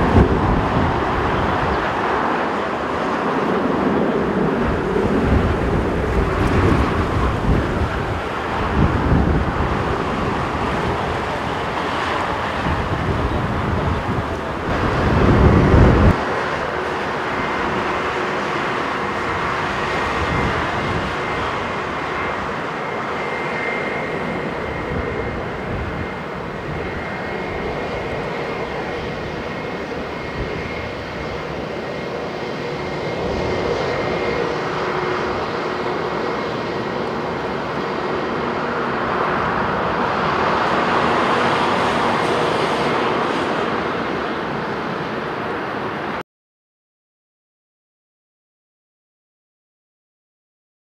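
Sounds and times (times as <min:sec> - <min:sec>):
jet engines running: 0:00.0 - 0:46.2
wind buffeting microphone: 0:00.0 - 0:46.2.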